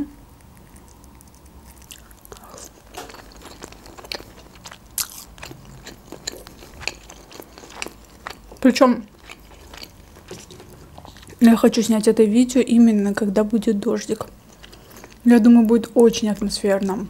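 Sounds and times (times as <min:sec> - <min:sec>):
wet chewing mouth clicks: 0:00.3 - 0:11.4.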